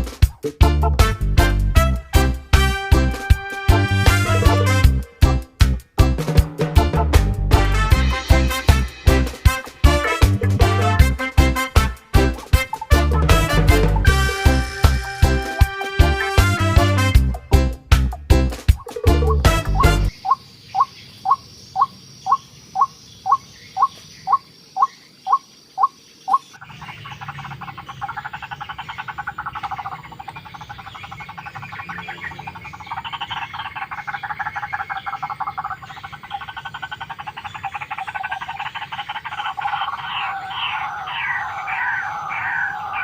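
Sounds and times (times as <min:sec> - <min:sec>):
waterhen calling: 0:18.8 - 0:43.0.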